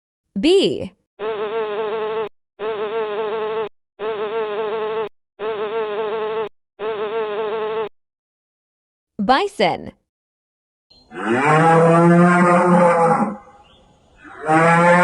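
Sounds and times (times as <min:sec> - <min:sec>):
bee buzzing: 0:01.2 - 0:07.9.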